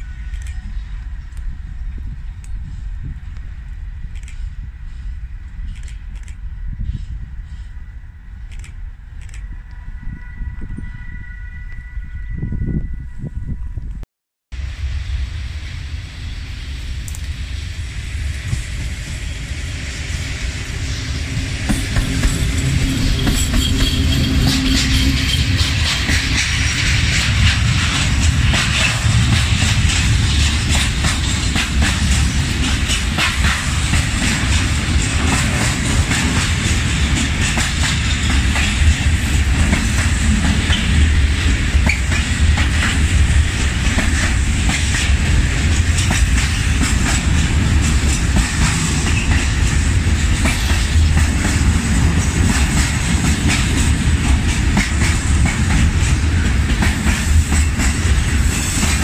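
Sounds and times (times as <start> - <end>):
train rumbling past: 0.0 - 14.0, 14.6 - 59.0.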